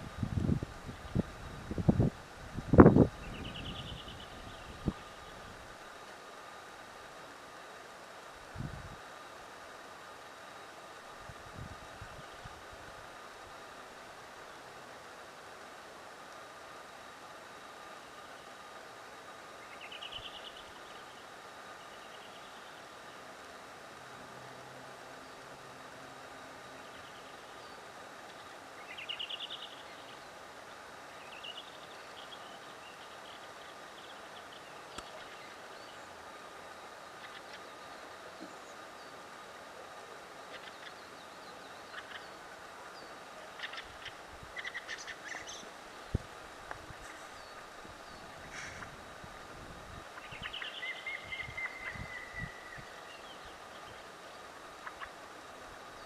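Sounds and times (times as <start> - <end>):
outdoor background noise: 0.0 - 56.0
steady background hiss: 0.0 - 56.0
small bird singing: 3.1 - 5.4, 19.6 - 23.2, 26.7 - 30.4, 31.1 - 36.2, 40.5 - 45.7, 50.1 - 55.2
songbird trilling and chirping: 3.2 - 5.0, 26.8 - 30.3, 43.0 - 45.7, 50.2 - 54.0.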